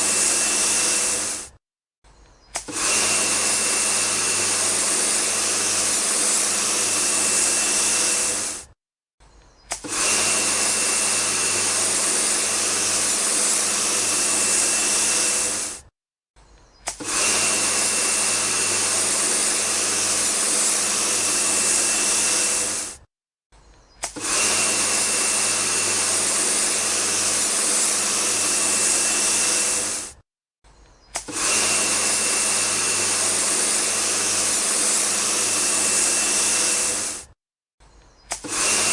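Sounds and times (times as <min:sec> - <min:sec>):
small motor whirring with whine: 0:00.0 - 0:38.9.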